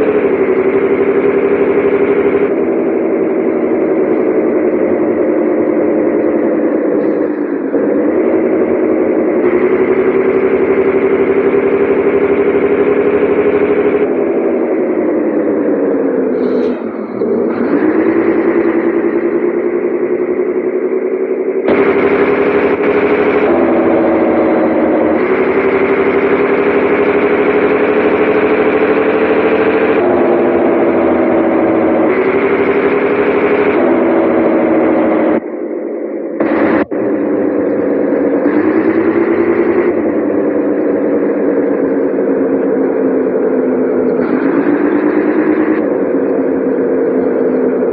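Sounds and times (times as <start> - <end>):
diesel engine running under load: 0.0 - 47.9.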